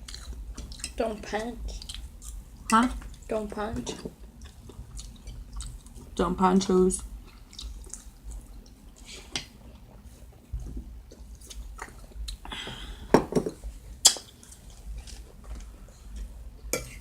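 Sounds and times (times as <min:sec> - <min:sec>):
person chewing: 0:00.0 - 0:01.0, 0:01.6 - 0:03.3, 0:04.0 - 0:06.1, 0:07.0 - 0:10.1, 0:11.0 - 0:12.5, 0:14.0 - 0:17.0.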